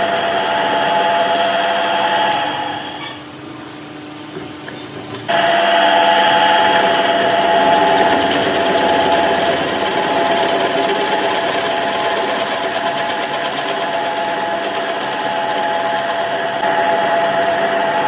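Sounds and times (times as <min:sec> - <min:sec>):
power tool rattling: 0:05.3 - 0:16.6.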